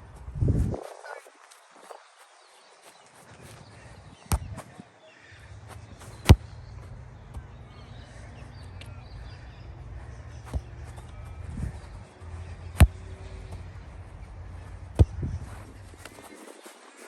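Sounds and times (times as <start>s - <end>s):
steady low rumble: 0.0s - 0.8s, 5.5s - 16.1s
ball kick thuds: 4.2s - 4.8s, 5.9s - 7.4s, 10.3s - 13.8s, 14.6s - 16.2s.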